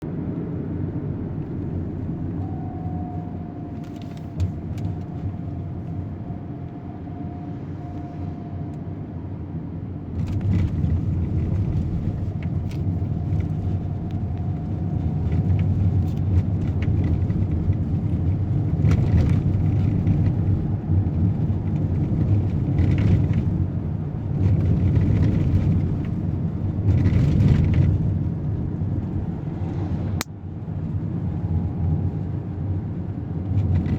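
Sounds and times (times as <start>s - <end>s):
road vehicles rumbling: 0.0s - 33.9s.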